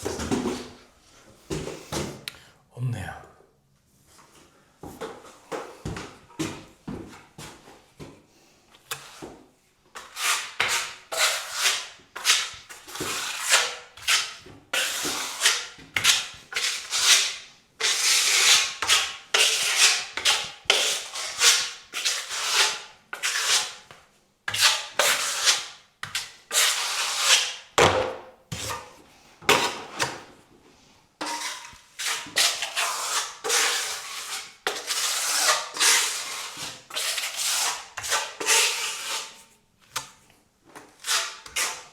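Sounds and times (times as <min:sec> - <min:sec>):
filling knife scraping a wall: 0:10.0 - 0:23.9, 0:24.5 - 0:27.7, 0:31.2 - 0:39.5, 0:41.0 - 0:41.9.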